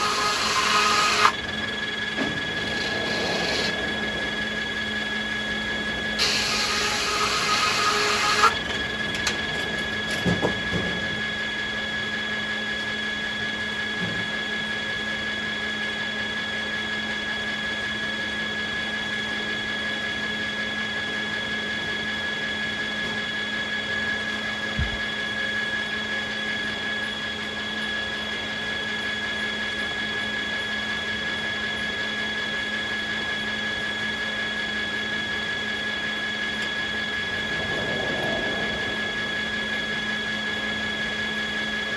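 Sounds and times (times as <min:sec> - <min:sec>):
sawmill machinery whining: 0:00.0 - 0:16.5, 0:31.8 - 0:41.9.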